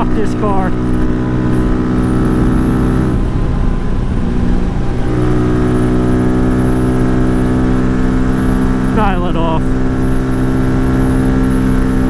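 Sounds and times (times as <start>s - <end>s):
motorcycle engine at high pitch: 0.0s - 12.0s
wind buffeting microphone: 0.6s - 8.9s.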